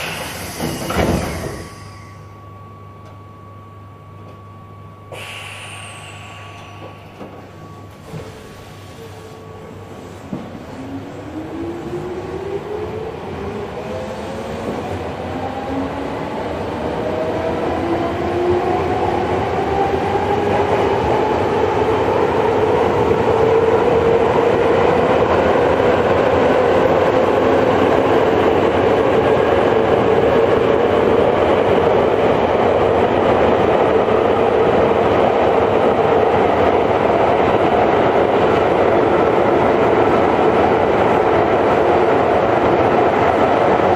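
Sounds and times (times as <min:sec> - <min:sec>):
train motor whine: 0:00.0 - 0:02.4, 0:05.1 - 0:09.6.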